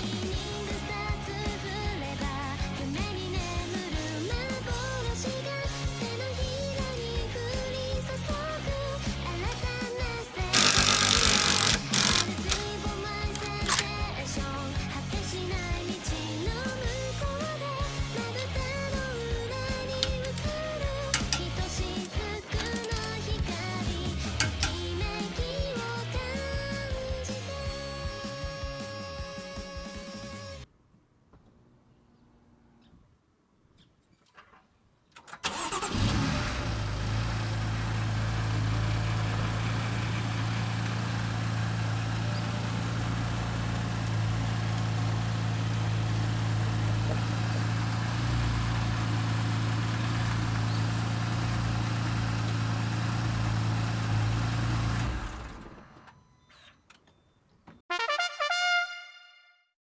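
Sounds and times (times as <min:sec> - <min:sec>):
car engine starting and idling: 0:00.0 - 0:25.3, 0:35.3 - 0:56.4.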